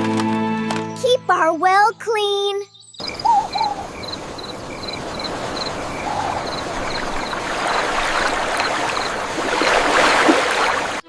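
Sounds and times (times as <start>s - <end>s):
insects chirping: 2.7s - 11.0s
rushing wash of noise: 3.0s - 11.0s.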